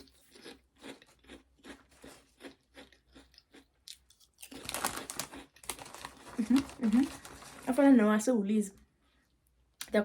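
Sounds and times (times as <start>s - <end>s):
person chewing crunchy chips: 0.0s - 7.7s.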